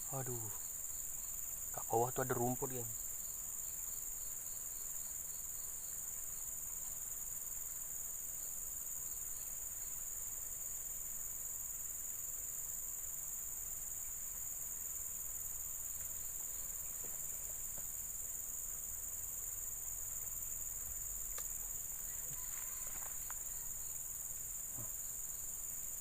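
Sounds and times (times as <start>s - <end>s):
crickets chirring: 0.0s - 26.0s
faint click: 21.3s - 21.5s.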